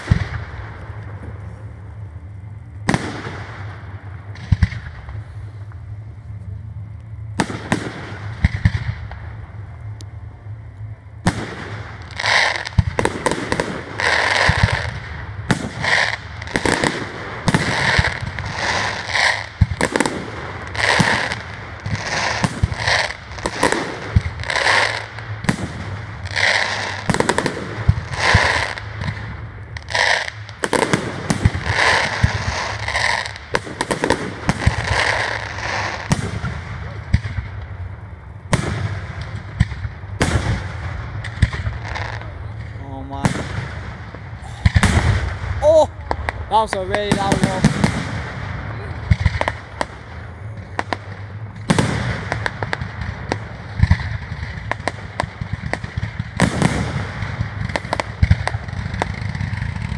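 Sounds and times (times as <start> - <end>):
firework shells bursting: 38.5 - 59.9.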